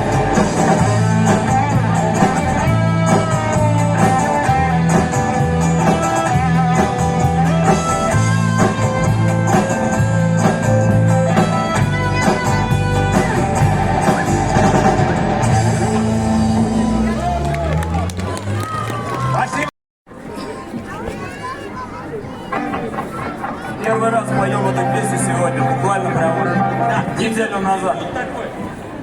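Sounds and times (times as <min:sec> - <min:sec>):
repeating bass line: 0:00.0 - 0:18.6
guitar: 0:00.0 - 0:19.2, 0:22.2 - 0:27.5.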